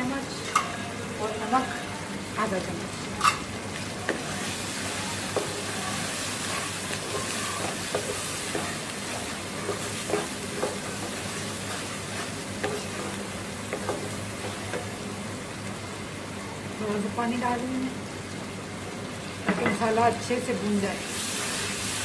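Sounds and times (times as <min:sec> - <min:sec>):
masala sizzling in oil: 0:00.0 - 0:22.0
spatula scraping and knocking pan: 0:04.0 - 0:15.0.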